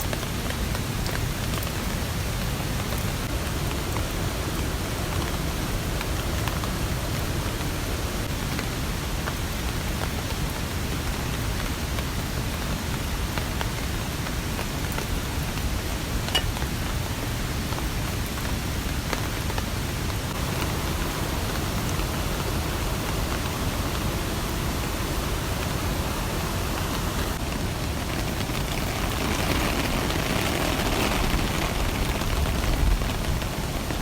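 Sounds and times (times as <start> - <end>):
steady rain: 0.0 - 34.0
raindrops ticking: 16.2 - 16.9, 20.2 - 34.0.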